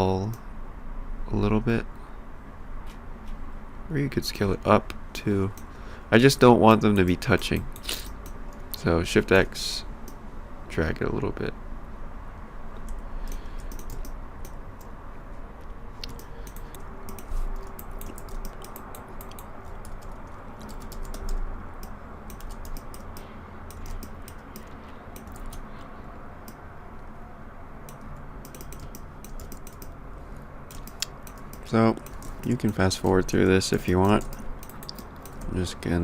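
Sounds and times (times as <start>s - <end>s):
steady low hum: 0.0s - 36.0s
keyboard keys clicking: 12.8s - 14.9s, 16.0s - 25.7s, 27.9s - 30.0s, 30.7s - 35.6s
mouse buttons clicking: 12.8s - 14.9s, 16.0s - 25.7s, 27.9s - 30.0s, 30.7s - 32.9s.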